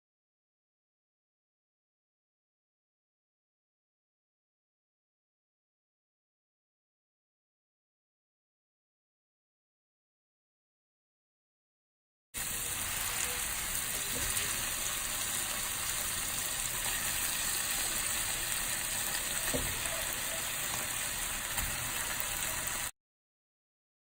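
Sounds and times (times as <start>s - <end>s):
food sizzling in hot oil: 12.4s - 22.9s.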